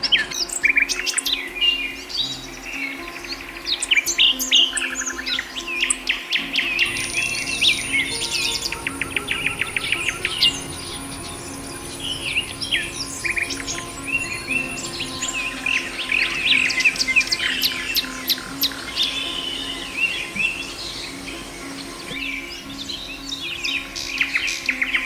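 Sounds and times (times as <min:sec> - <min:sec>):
songbirds chirping: 0:00.0 - 0:25.0
thin high tone: 0:00.0 - 0:25.0.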